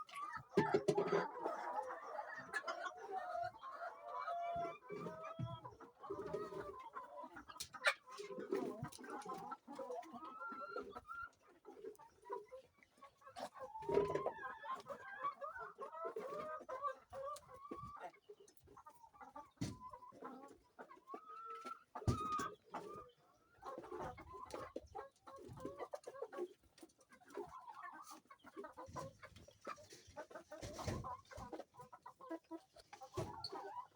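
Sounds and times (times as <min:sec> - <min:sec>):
hens clucking: 0:00.0 - 0:33.9.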